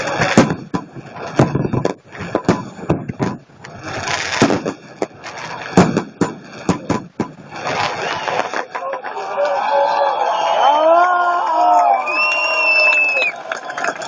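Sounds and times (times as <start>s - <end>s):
noisy hiss: 0.0s - 9.4s
fireworks bangs: 0.0s - 9.8s.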